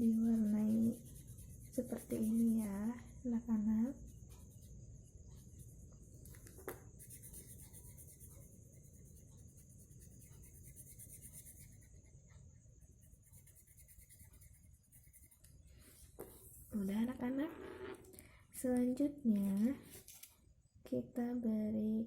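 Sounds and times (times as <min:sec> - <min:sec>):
colouring scratching on paper: 0:00.0 - 0:16.8.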